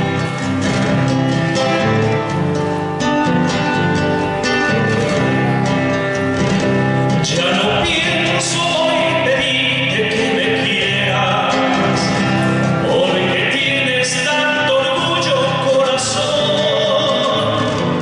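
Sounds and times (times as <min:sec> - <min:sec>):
acoustic guitar: 0:00.0 - 0:18.0
person singing: 0:04.5 - 0:18.0.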